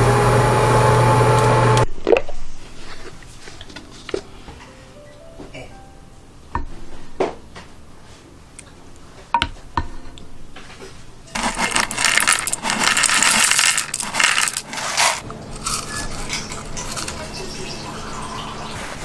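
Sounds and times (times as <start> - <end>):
kitchenware clinking: 11.3 - 18.5.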